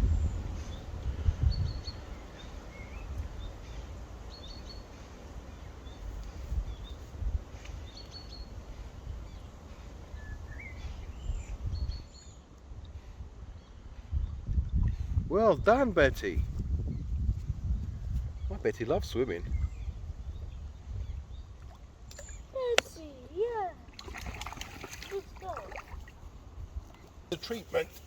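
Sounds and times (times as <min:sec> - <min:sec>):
steady low rumble: 0:00.0 - 0:04.4
bird chirping: 0:00.0 - 0:12.5.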